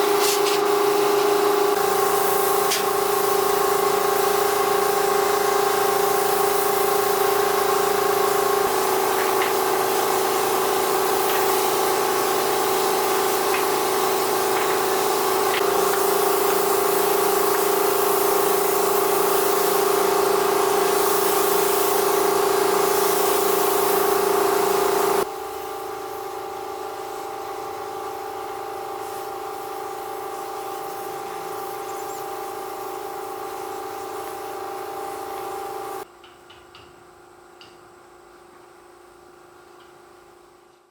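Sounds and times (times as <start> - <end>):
noisy hiss: 0.0 - 25.6
machine hum: 0.0 - 36.3.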